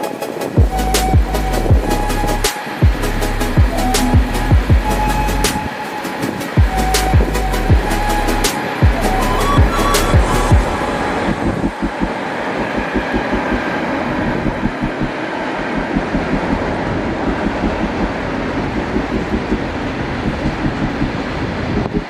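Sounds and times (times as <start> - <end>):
train rail rumble: 0.0 - 22.0.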